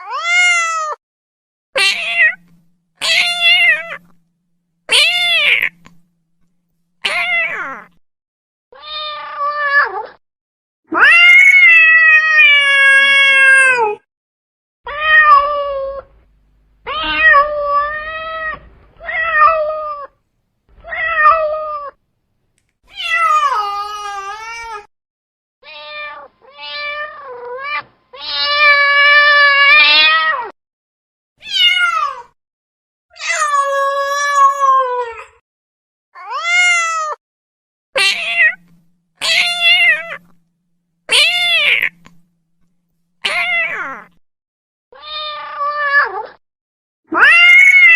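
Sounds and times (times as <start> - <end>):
cat meowing: 1.8 - 4.2, 4.9 - 6.1, 7.0 - 8.0, 8.8 - 10.2, 14.9 - 16.1, 16.8 - 20.2, 20.8 - 22.0, 22.9 - 24.9, 25.6 - 30.5, 31.4 - 32.3, 38.0 - 40.4, 41.1 - 42.3, 43.2 - 44.2, 45.0 - 46.4, 47.1 - 47.9.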